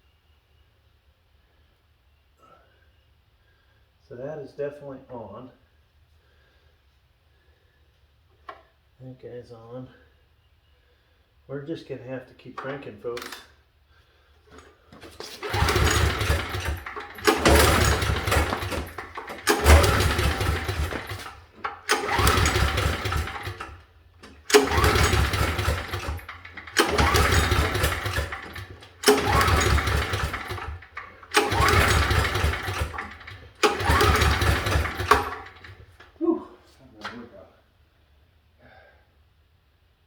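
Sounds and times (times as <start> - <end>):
generator engine cranking: 14.5 - 36.2.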